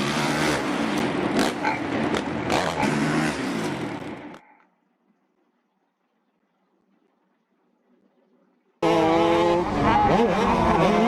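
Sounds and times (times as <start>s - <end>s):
dirt bike engines revving: 0.0s - 4.6s, 8.8s - 11.0s
race track noise: 0.0s - 4.7s, 8.8s - 11.0s.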